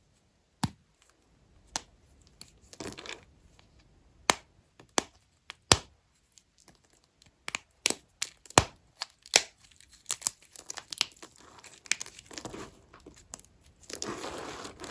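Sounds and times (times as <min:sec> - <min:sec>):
soap snapping and crumbling: 0:04.3 - 0:14.2.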